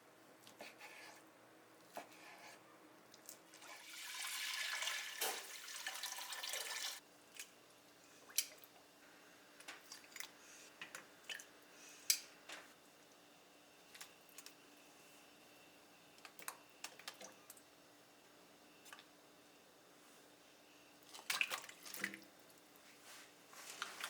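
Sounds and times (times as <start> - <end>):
water running from tap: 3.8 - 7.0.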